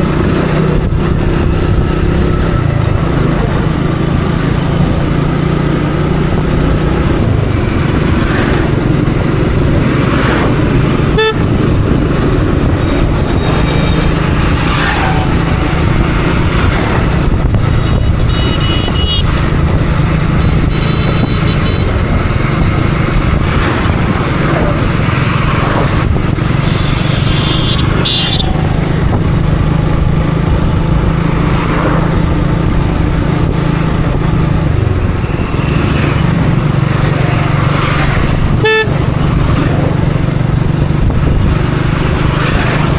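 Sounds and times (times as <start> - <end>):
motorcycle engine running: 0.0 - 42.9
vehicle horn toots: 11.1 - 11.5, 17.8 - 19.4, 20.4 - 22.0, 26.6 - 28.6, 38.6 - 39.0.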